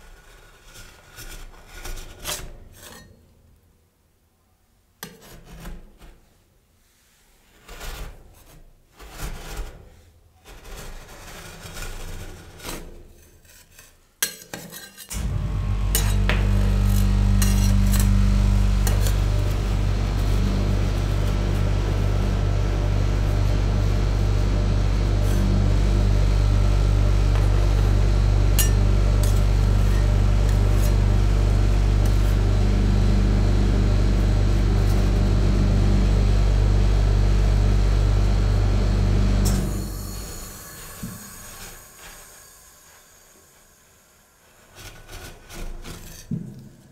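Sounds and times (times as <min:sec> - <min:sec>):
metal spatula scraping ice cream: 0:07.5 - 0:15.1
refrigeration unit humming: 0:15.1 - 0:44.0.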